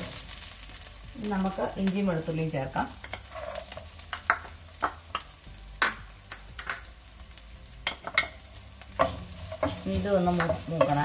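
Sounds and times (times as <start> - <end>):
frying in hot oil sizzle: 0.0 - 11.0.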